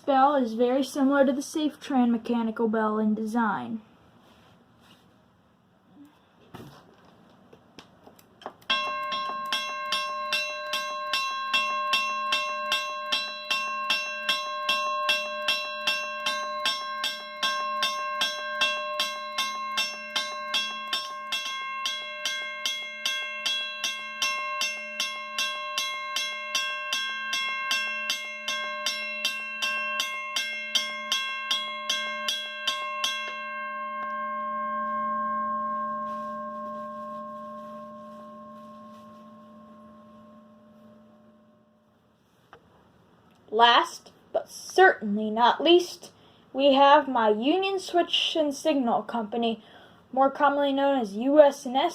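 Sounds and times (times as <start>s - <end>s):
railroad crossing bell ringing: 8.7s - 41.9s.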